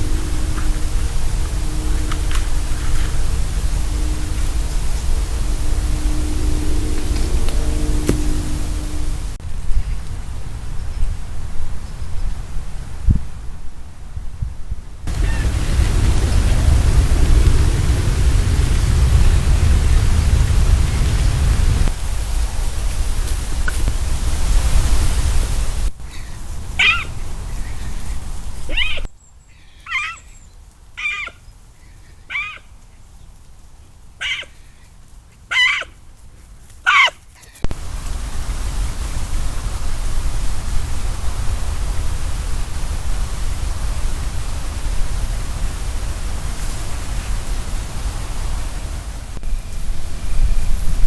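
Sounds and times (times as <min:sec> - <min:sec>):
wind on microphone: 0:00.0 - 0:29.1, 0:37.6 - 0:51.0
high-pitched animal calls: 0:26.2 - 0:28.1, 0:28.7 - 0:30.4, 0:31.0 - 0:31.4, 0:32.3 - 0:32.7, 0:34.2 - 0:34.6, 0:35.5 - 0:36.0, 0:36.8 - 0:37.6.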